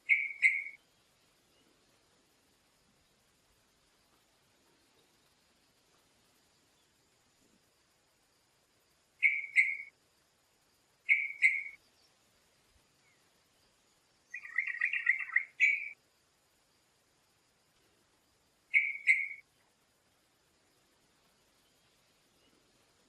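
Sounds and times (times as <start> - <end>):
bird calling: 0.0 - 0.8, 9.2 - 9.9, 11.1 - 11.8, 14.3 - 16.0, 18.7 - 19.4.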